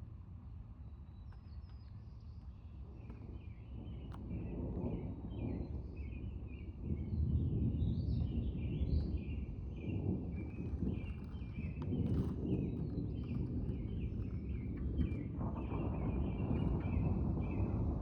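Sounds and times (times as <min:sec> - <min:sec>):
rolling thunder: 0:03.8 - 0:18.0.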